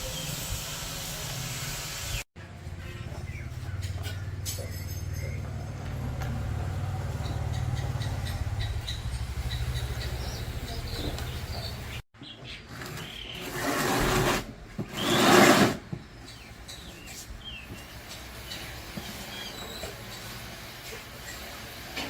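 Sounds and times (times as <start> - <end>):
birds chirping: 2.1 - 13.8, 16.0 - 20.5
motorcycle engine idling: 2.5 - 12.0.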